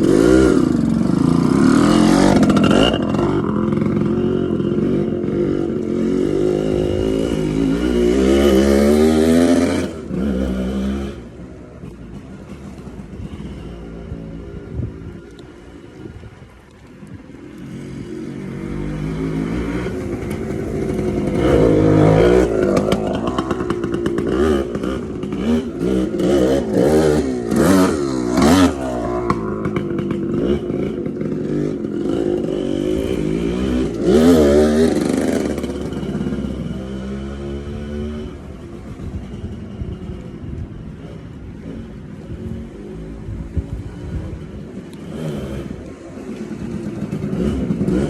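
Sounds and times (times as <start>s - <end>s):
dirt bike engine revving: 0.0s - 11.5s, 17.6s - 39.9s, 41.1s - 48.0s.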